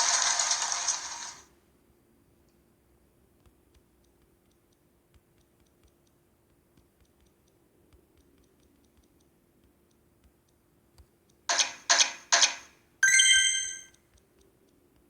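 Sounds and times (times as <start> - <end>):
faint small clicks: 2.4 - 11.5.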